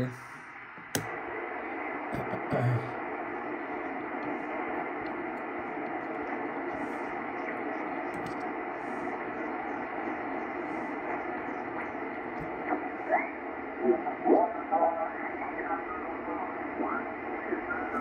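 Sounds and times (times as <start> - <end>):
shortwave receiver static: 0.0 - 18.0.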